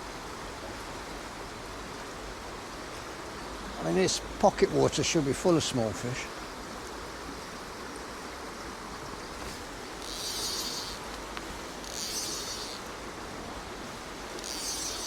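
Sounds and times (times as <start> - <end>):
stream running water: 0.0 - 15.0
high-pitched buzzy bursts: 10.0 - 13.0, 14.4 - 15.0.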